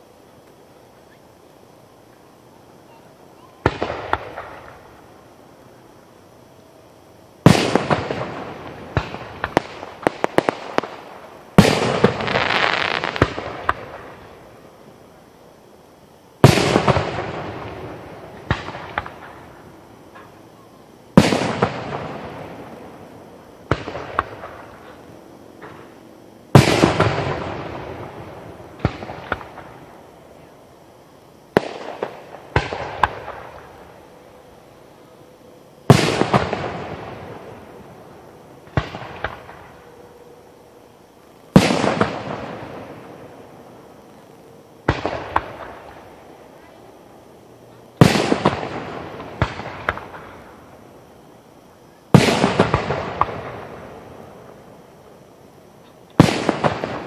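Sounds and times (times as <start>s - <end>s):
firework single cracks: 3.6s - 5.0s, 7.4s - 14.4s, 16.4s - 20.4s, 21.1s - 22.9s, 23.6s - 30.0s, 31.5s - 33.9s, 35.9s - 38.0s, 38.6s - 39.8s, 41.5s - 43.3s, 44.8s - 46.4s, 48.0s - 50.8s, 52.1s - 54.6s, 56.1s - 57.0s
rapid firework crackling: 7.4s - 14.5s, 16.4s - 20.2s, 21.1s - 23.0s, 31.5s - 34.0s, 35.9s - 39.8s, 41.3s - 46.7s, 48.0s - 51.2s, 52.1s - 54.6s, 56.1s - 57.0s.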